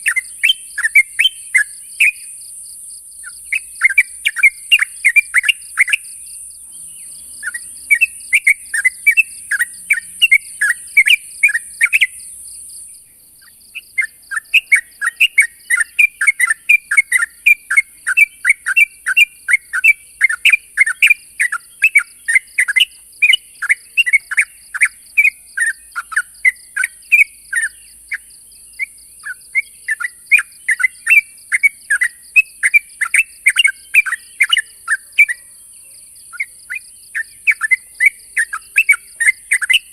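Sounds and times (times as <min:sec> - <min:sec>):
bird chattering call: 0:00.0 - 0:02.3, 0:03.2 - 0:12.4, 0:29.2 - 0:35.5, 0:36.3 - 0:39.9.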